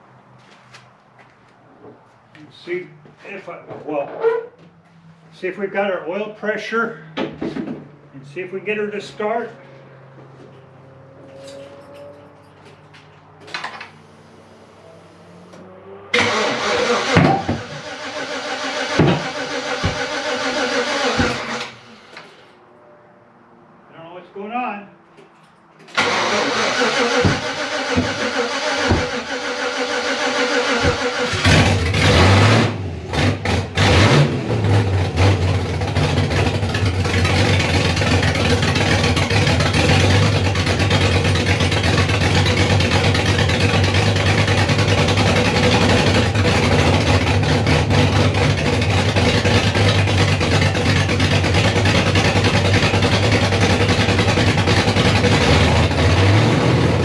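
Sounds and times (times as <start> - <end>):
engine revving and running: 8.9 - 22.4, 25.9 - 57.0
engine cranking on starter: 16.2 - 22.4, 25.9 - 56.4.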